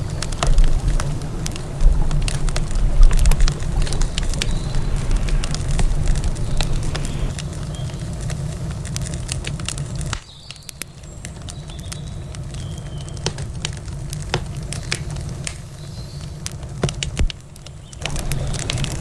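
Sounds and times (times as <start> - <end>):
low rumble: 0.0 - 8.8
campfire crackling: 0.0 - 19.0.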